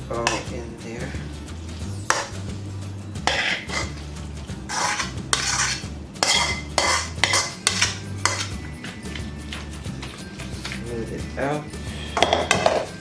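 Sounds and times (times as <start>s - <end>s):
utensil scraping dip from bowl: 3.2s - 4.1s, 4.7s - 10.9s.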